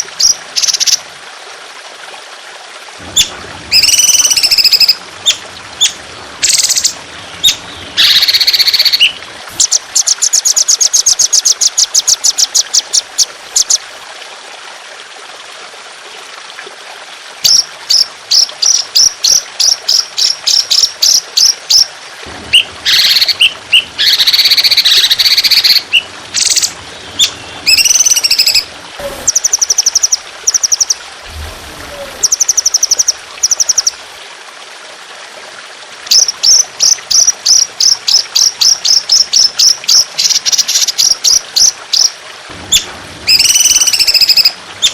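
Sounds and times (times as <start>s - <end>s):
running water trickling: 0.0s - 44.9s
songbird singing: 3.2s - 13.8s, 22.5s - 34.0s, 42.7s - 44.9s.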